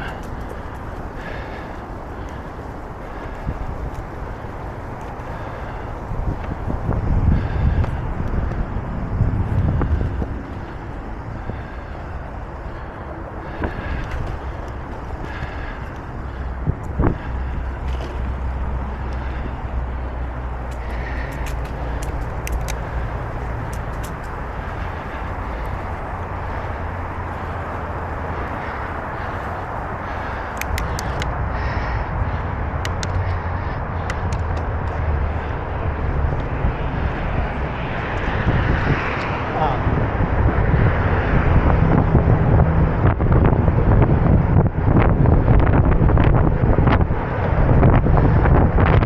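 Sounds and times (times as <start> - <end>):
bicycle rolling on trail: 0.0 - 49.0
wind on microphone: 0.0 - 49.0
sharp ticks: 20.3 - 28.7, 30.2 - 31.4.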